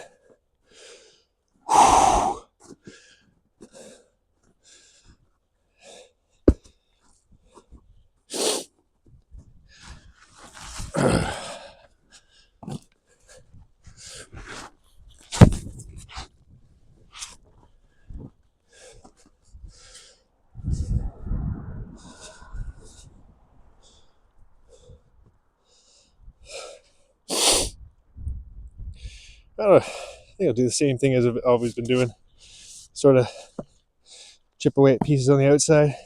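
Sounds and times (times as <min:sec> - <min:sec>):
man breathing heavily: 0:00.0 - 0:08.7, 0:09.6 - 0:14.6, 0:17.6 - 0:21.2, 0:21.9 - 0:27.8, 0:28.8 - 0:30.4, 0:32.0 - 0:34.5
axe striking wood: 0:06.5 - 0:06.7, 0:15.4 - 0:15.7.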